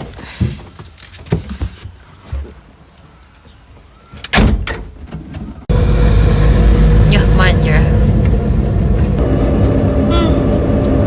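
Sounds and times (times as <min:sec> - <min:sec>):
car driving rumble from inside: 0:05.7 - 0:11.0.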